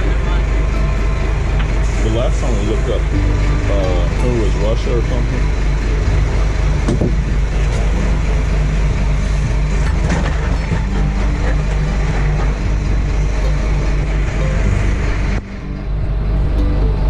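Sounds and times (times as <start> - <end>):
boat engine droning: 0.0 - 17.0
wind: 0.0 - 17.0.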